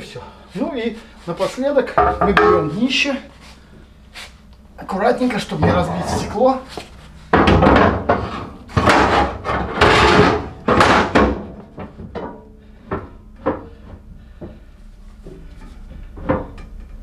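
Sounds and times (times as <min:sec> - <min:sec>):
metal plate scraping and knocking: 0:01.9 - 0:02.8, 0:05.6 - 0:06.4, 0:07.4 - 0:13.9.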